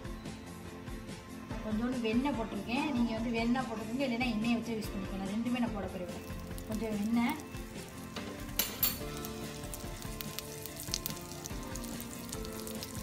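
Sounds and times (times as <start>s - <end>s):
background music: 0.0s - 13.0s
butter sizzling in a hot pan: 5.8s - 13.0s.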